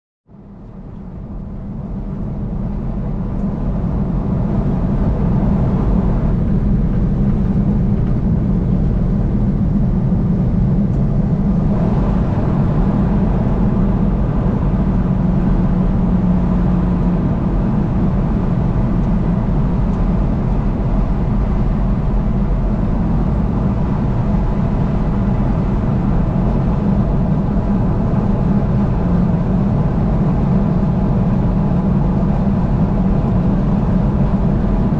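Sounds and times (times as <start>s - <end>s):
car engine and tyre rumble: 0.3s - 34.9s.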